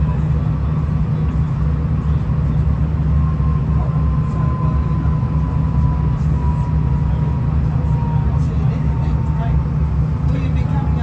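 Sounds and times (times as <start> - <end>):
railcar engine rumble: 0.0 - 11.0
faint thin whine: 1.2 - 9.8.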